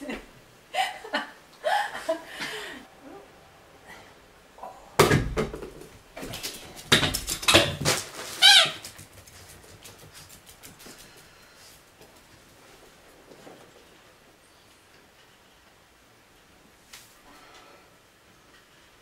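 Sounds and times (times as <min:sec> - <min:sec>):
dog yelping and whining: 0:08.4 - 0:08.9.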